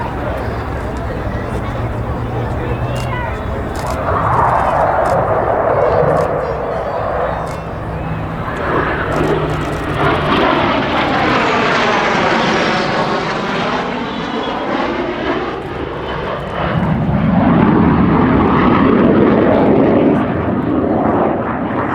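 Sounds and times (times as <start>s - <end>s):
jet engines roaring flying past: 0.0s - 21.9s.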